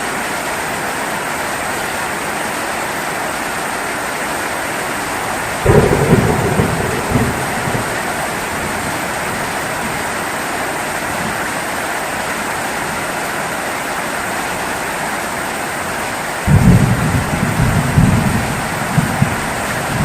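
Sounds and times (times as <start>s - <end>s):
heavy rain hissing: 0.0s - 20.0s.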